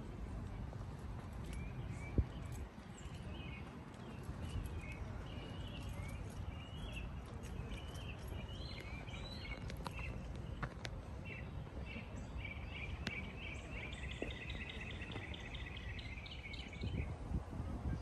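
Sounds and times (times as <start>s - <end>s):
steady low rumble: 0.0s - 18.0s
bird chirps: 1.4s - 10.6s.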